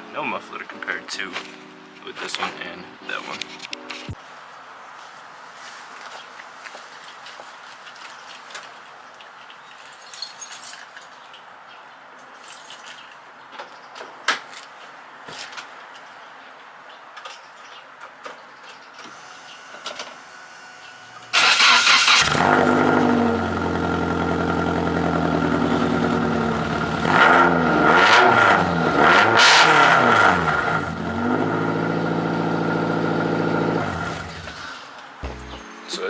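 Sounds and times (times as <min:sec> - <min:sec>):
car engine revving without muffler: 0:21.0 - 0:35.6.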